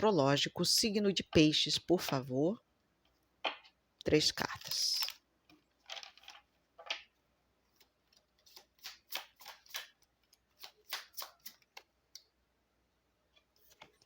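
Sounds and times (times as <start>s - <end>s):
cards flicking and tapping: 7.8s - 12.3s.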